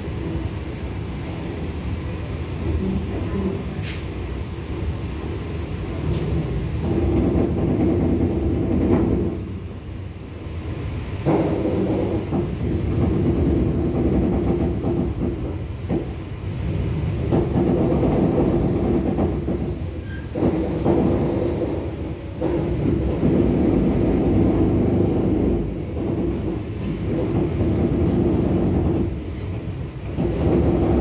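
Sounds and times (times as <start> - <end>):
train rumble inside carriage: 0.0 - 31.0
wheels clickety-clack: 6.0 - 9.5, 11.2 - 31.0.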